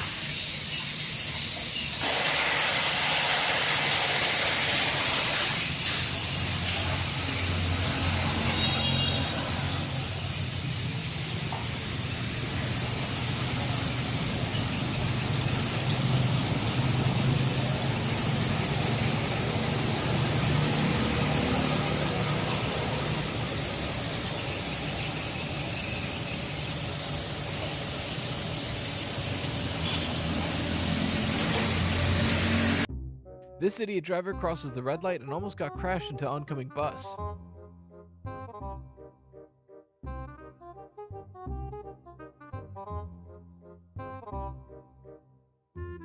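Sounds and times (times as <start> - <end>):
road noise: 5.1 - 32.9
vehicle engine hum: 5.8 - 32.9.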